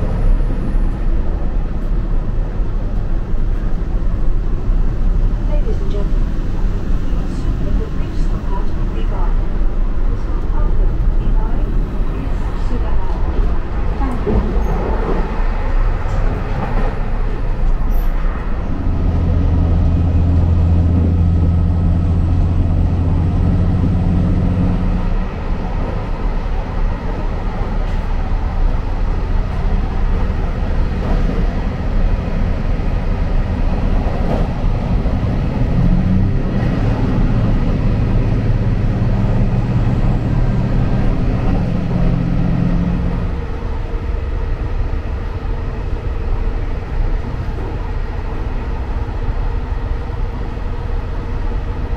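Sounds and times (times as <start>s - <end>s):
train rumbling on rails: 0.0s - 51.9s
diesel engine droning: 17.2s - 51.8s.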